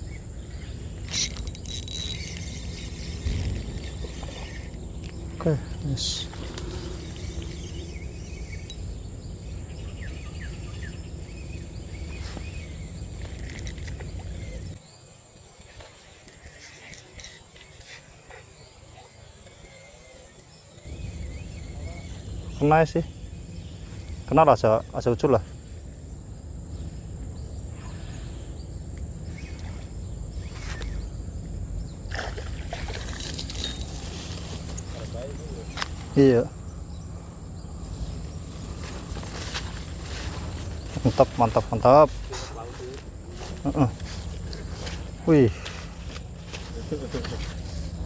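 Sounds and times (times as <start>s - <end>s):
steady low rumble: 0.0s - 14.8s, 20.9s - 48.0s
high insect drone: 0.0s - 48.0s
small birds chirping: 0.0s - 48.0s
water sloshing and splashing: 32.0s - 35.0s.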